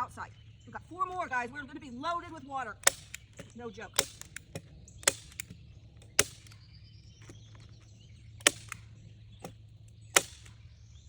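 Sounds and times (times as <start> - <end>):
staple gun shots into wood: 2.8 - 6.6, 8.4 - 10.6.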